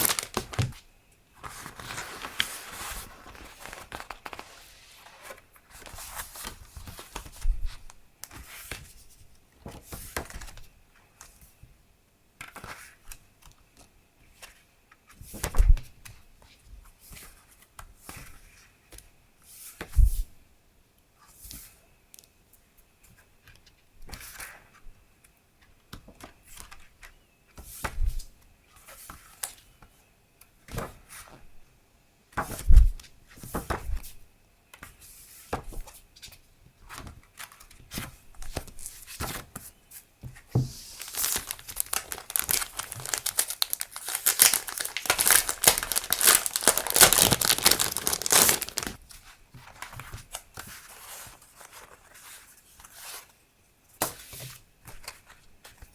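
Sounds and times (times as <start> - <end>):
packaging crinkling and tearing: 0.0 - 0.8, 1.4 - 5.4, 40.8 - 49.0.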